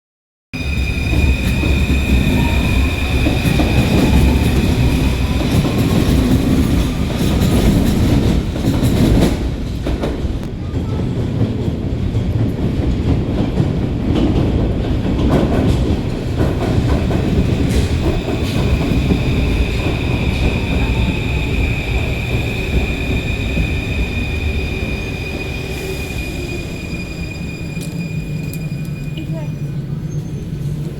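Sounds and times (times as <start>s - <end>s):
steady high-pitched tone: 0.6s - 7.0s
train rumbling on rails: 0.6s - 30.9s.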